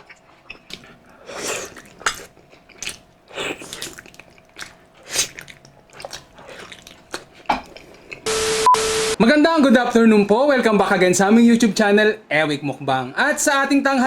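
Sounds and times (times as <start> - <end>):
slurping and chewing: 0.0 - 8.3.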